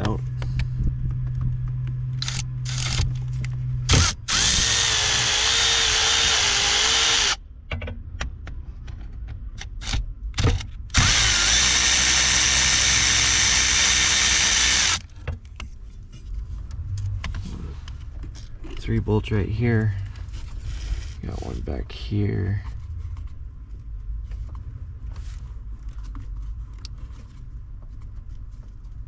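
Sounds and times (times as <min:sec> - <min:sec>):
power drill running: 0:03.9 - 0:07.4, 0:10.9 - 0:15.1.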